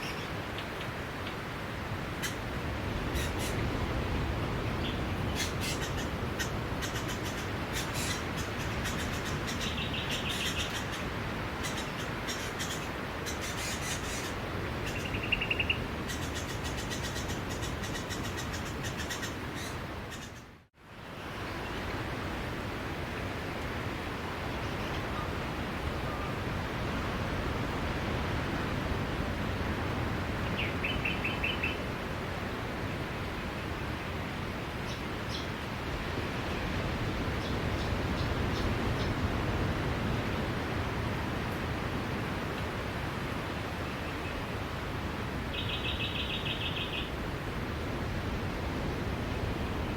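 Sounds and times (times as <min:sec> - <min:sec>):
sea waves: 0:21.1 - 0:34.8.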